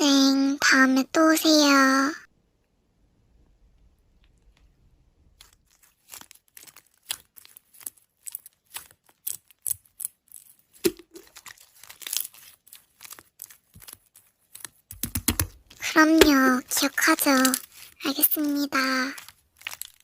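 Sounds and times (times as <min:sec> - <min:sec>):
slime crackling and popping: 0:05.3 - 0:20.0.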